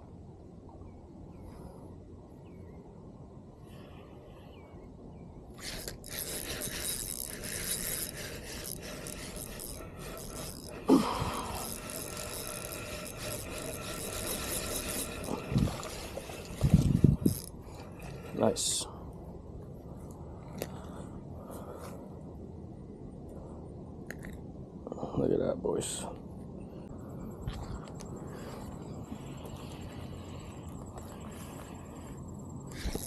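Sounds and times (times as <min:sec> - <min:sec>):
fishing reel gears ticking: 0:05.6 - 0:18.8, 0:29.2 - 0:33.0.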